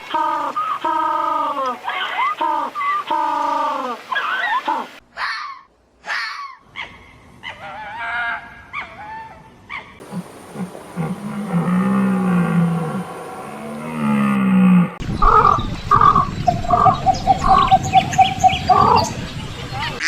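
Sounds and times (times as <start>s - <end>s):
high animal cries: 10.0s - 15.0s
deep low animal call: 10.0s - 16.9s.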